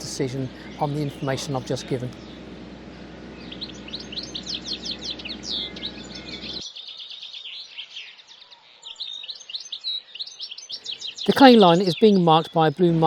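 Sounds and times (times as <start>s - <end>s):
low steady hum: 0.0s - 6.6s
birds chirping: 0.0s - 13.0s.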